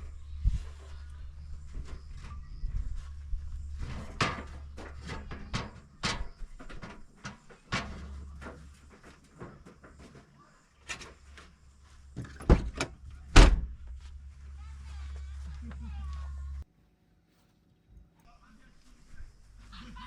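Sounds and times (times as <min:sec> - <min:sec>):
steady low hum: 0:00.0 - 0:10.1, 0:18.0 - 0:20.0
objects being handled clattering: 0:03.6 - 0:13.1.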